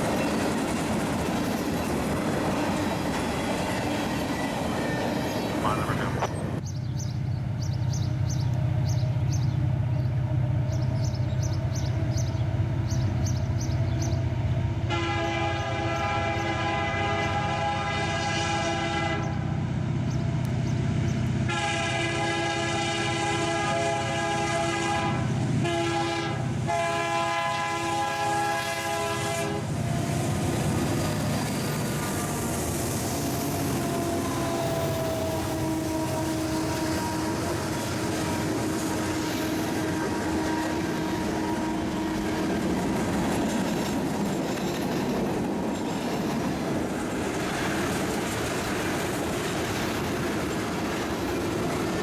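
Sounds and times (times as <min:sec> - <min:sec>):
train wheels rumbling on rail: 0:00.0 - 0:52.0
birds chirping: 0:04.3 - 0:14.6, 0:19.2 - 0:21.3
locomotive air horn: 0:14.9 - 0:19.4, 0:21.5 - 0:29.8, 0:33.6 - 0:42.5.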